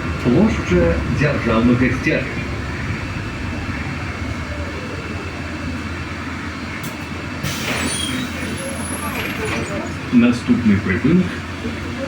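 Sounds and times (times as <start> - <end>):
bus cabin hum and road noise: 0.0 - 12.0
air hissing: 7.4 - 9.8.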